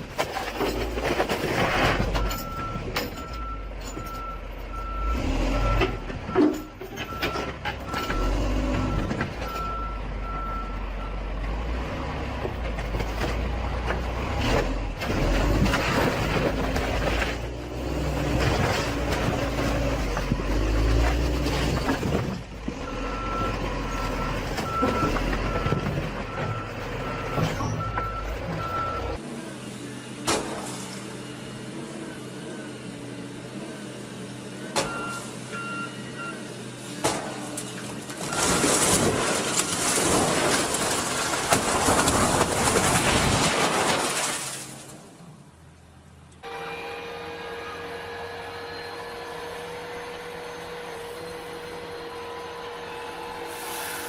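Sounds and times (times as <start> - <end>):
heavy truck engines running: 0.0 - 54.0
reversing alarm beeping: 2.2 - 11.2, 22.9 - 29.2, 34.8 - 36.5.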